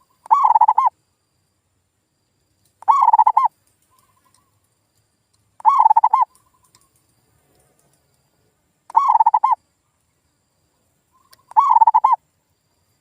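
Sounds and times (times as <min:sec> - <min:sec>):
dove cooing: 0:00.3 - 0:00.9, 0:02.8 - 0:03.5, 0:05.6 - 0:06.4, 0:08.9 - 0:09.6, 0:11.3 - 0:12.2.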